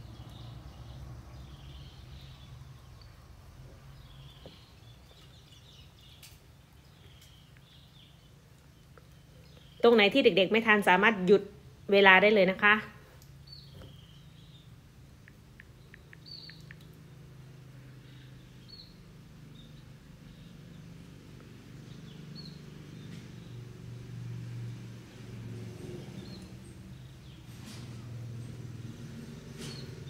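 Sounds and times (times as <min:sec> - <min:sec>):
small bird chirping: 0:00.0 - 0:10.7, 0:13.2 - 0:23.8, 0:25.8 - 0:27.7.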